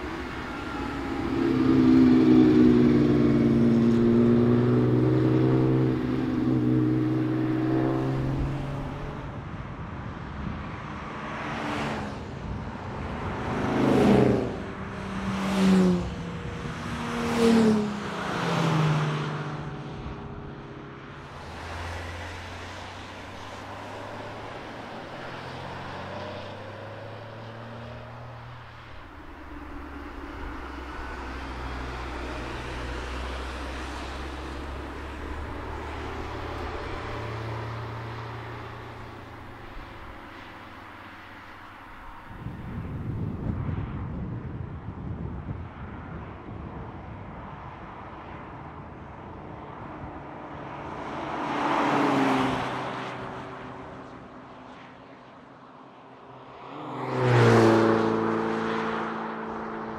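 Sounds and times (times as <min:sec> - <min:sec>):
low engine drone: 0:00.0 - 0:09.3, 0:19.9 - 0:41.3
sports car accelerating past: 0:00.0 - 0:09.3, 0:56.3 - 0:59.9
cars passing by: 0:00.0 - 0:59.9.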